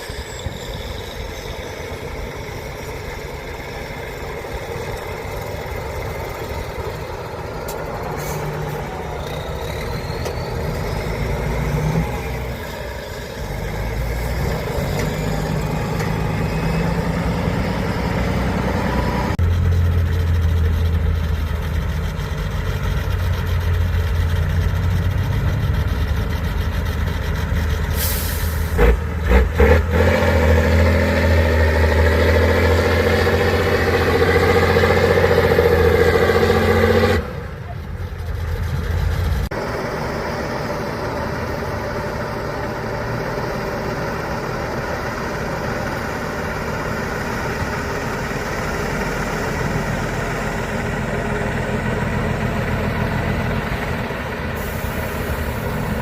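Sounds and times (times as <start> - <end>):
truck diesel engines under load: 0.0 - 56.0
air hiss: 54.6 - 55.9.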